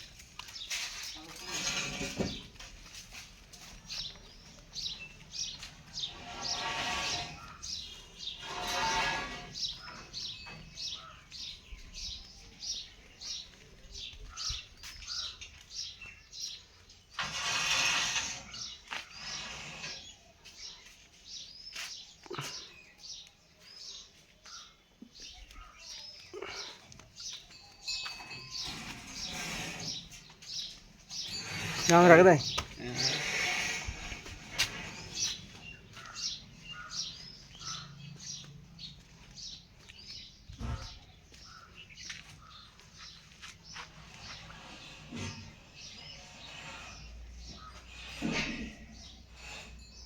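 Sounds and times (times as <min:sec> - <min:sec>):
small birds chirping: 0:00.0 - 0:50.0.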